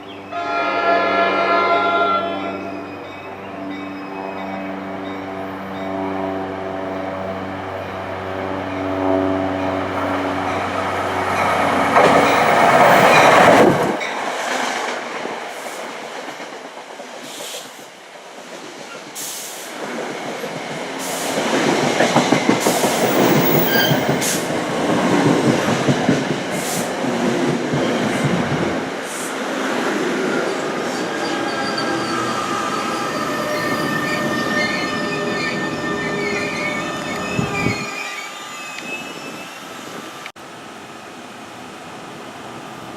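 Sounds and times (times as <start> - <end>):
electric trains passing at speed: 0.0 - 42.9
thin high squealing tones: 30.6 - 39.8.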